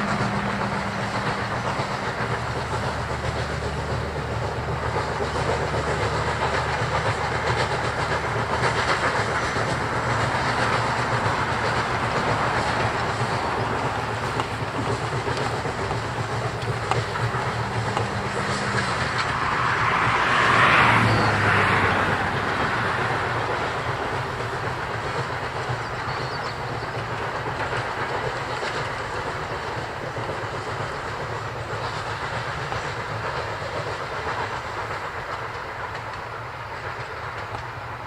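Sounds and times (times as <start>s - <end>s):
rush of noise: 0.0s - 24.8s
train wheels clicking over rail joints: 0.0s - 38.0s.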